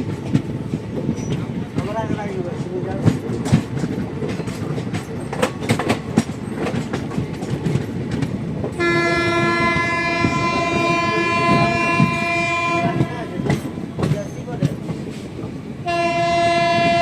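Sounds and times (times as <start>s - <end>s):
train rumble: 0.0s - 17.0s
train wheels clicking over rail joints: 0.0s - 17.0s
train horn blast: 8.8s - 13.5s, 15.8s - 17.0s.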